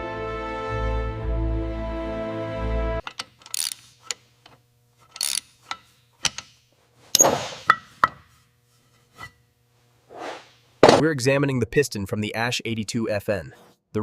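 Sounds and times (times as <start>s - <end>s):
music: 0.0s - 3.0s
metal parts knocked together: 3.0s - 4.2s, 7.2s - 8.3s, 10.8s - 11.0s.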